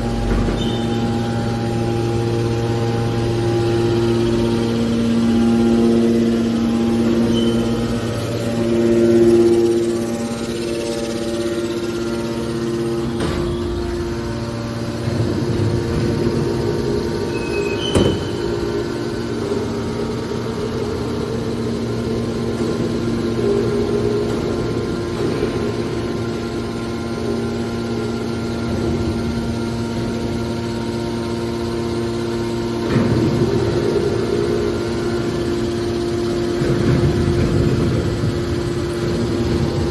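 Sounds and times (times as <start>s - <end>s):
baler motor and pump hum: 0.0s - 39.9s.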